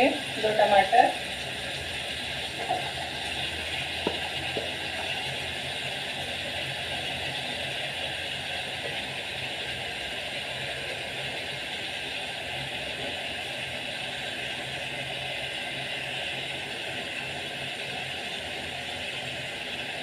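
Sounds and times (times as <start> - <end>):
chicken frying in a pot: 0.0 - 20.0
stirring with wooden spatula: 1.6 - 13.5.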